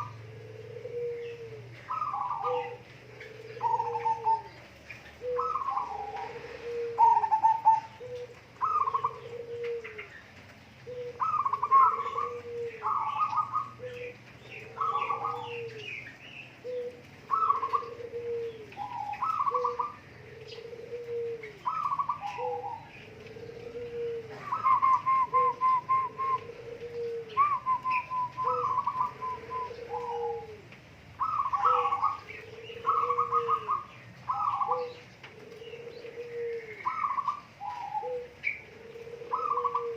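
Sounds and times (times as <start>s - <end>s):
bird cooing: 0.0s - 39.9s
bird quavering notes: 21.6s - 30.5s.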